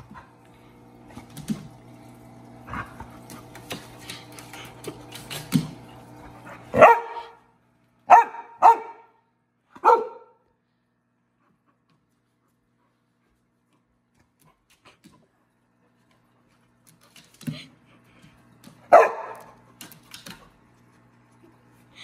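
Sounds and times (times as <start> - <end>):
puppy barking: 6.7 - 7.4, 8.1 - 9.2, 9.8 - 10.4, 18.9 - 19.5.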